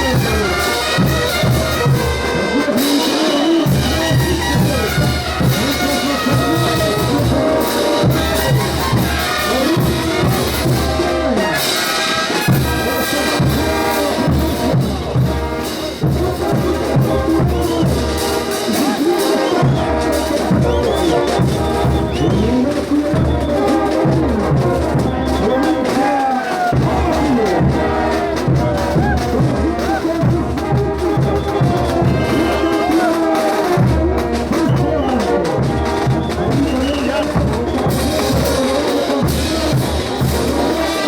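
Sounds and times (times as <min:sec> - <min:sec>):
bass drum beat: 0:00.0 - 0:02.4, 0:03.5 - 0:11.4, 0:12.5 - 0:41.0
trumpets and trombones melody: 0:00.0 - 0:41.0
tubas: 0:00.0 - 0:41.0.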